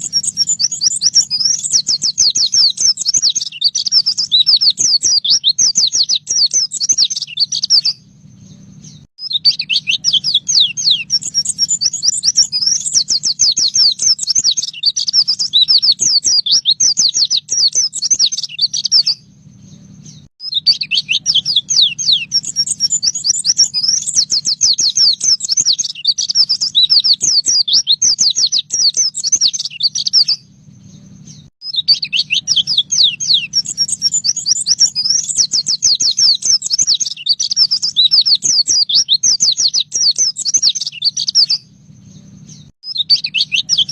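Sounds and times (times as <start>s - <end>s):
bird chattering song: 0.0s - 43.9s
steady low hum: 8.0s - 14.6s, 19.2s - 20.3s, 30.4s - 31.5s, 41.6s - 42.7s.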